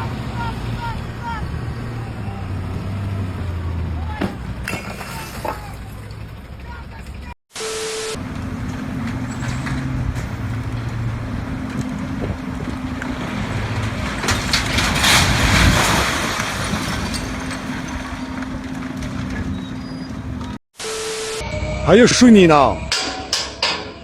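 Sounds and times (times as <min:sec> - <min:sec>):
truck engine running: 0:05.6 - 0:07.4, 0:08.1 - 0:15.2.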